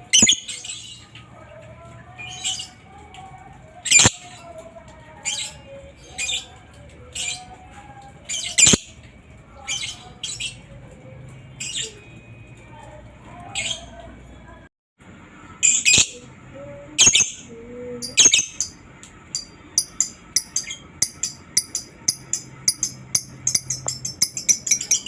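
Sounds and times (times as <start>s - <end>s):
faint bird twittering: 0.0s - 0.7s.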